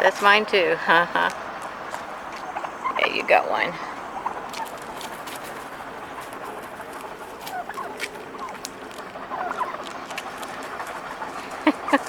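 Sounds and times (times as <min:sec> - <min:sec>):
turkeys clucking: 0:00.0 - 0:12.0.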